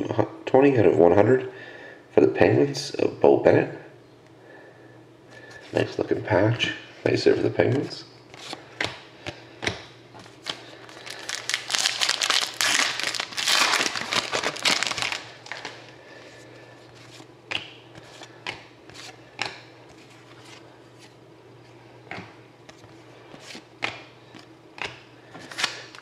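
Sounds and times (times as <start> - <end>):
card pack wrapper crinkling: 10.4 - 15.9
cards clicking and tapping: 17.5 - 19.6, 23.8 - 25.8.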